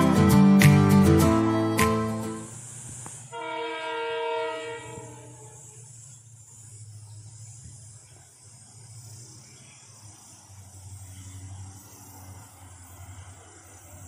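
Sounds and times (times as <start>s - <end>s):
steady high hiss: 0.0s - 14.0s
distant train rumble: 2.5s - 14.0s
train horn: 3.3s - 5.8s.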